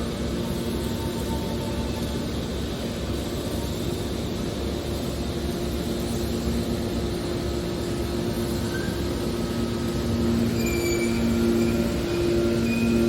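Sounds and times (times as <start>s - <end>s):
industrial machinery rumbling: 7.3s - 13.0s
faint short squeaks: 8.6s - 9.2s, 10.4s - 13.0s.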